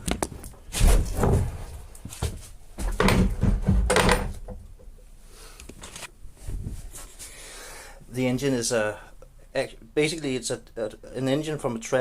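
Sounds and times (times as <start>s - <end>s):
wooden knocks and thumps: 0.0s - 5.0s.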